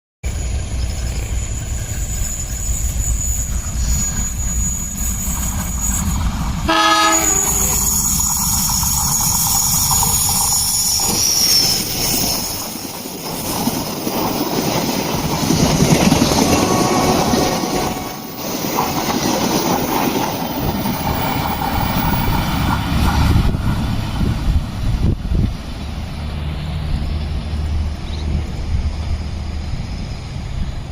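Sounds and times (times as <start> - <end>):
train horn blast: 6.7 - 7.8, 16.4 - 18.4
train wheels clattering over rail joints: 7.3 - 28.7.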